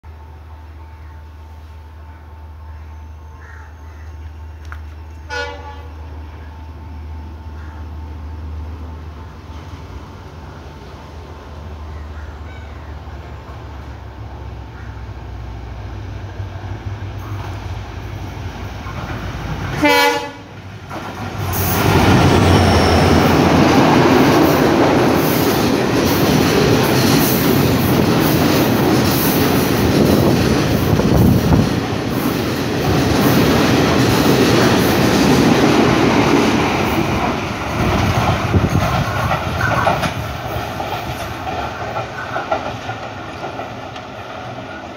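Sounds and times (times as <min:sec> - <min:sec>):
train horn blast: 0:05.2 - 0:06.6, 0:19.7 - 0:20.6
train wheels clattering over rails: 0:17.2 - 0:44.9.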